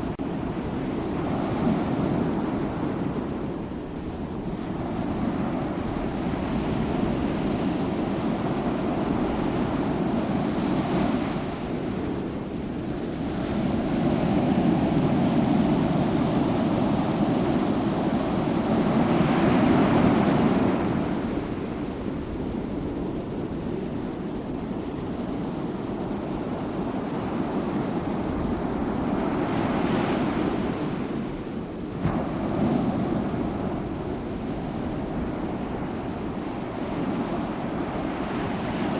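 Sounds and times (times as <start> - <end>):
sea waves washing in: 0.0 - 38.9.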